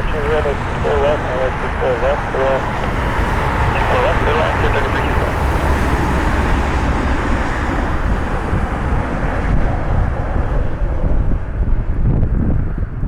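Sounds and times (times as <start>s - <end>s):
jet engine rushing: 0.0s - 12.0s
wind buffeting microphone: 0.0s - 13.0s.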